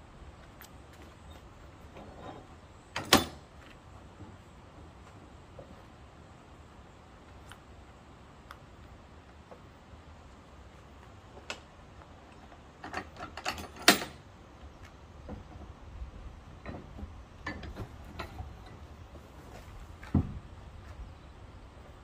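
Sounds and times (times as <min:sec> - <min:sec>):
knocks and clicks of wood and tools: 0:20.0 - 0:20.5.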